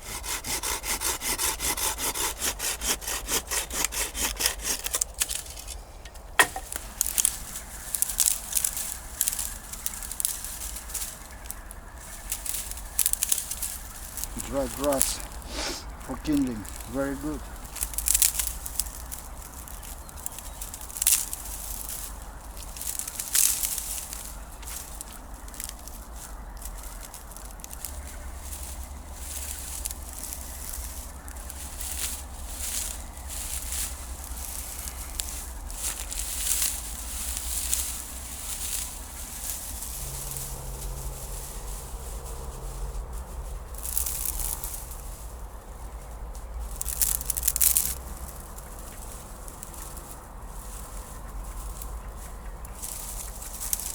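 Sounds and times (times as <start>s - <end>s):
dry grass and twigs crackling: 0.0s - 53.9s
low wind rumble: 0.0s - 53.9s.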